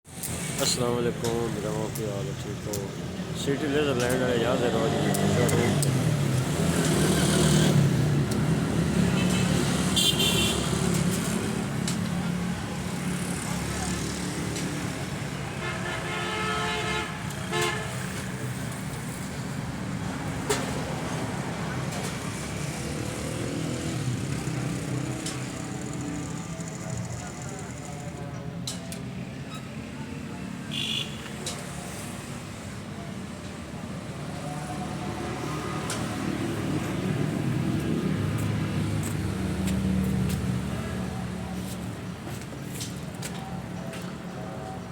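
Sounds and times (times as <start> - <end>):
vehicle horn: 9.2 - 10.8, 15.5 - 18.0, 30.7 - 31.3.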